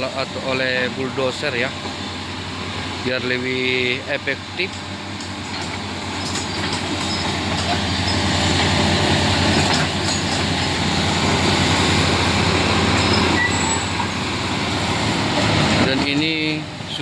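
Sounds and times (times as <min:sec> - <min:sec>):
excavator engine rumble: 0:00.0 - 0:17.0
steel tracks clattering: 0:04.1 - 0:17.0.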